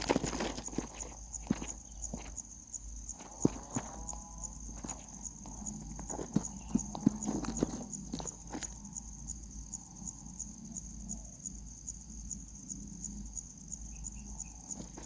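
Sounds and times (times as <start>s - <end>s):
insect trilling: 0.0s - 11.0s.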